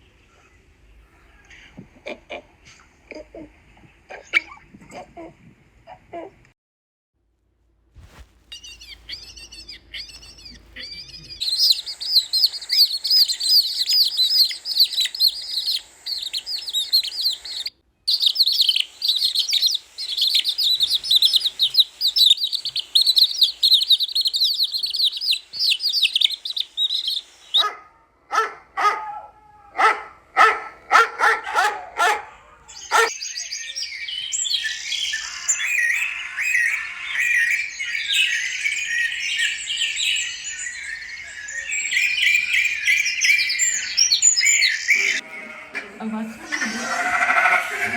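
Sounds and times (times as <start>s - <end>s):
small birds chirping: 8.0s - 47.9s
dog yapping: 27.6s - 33.1s.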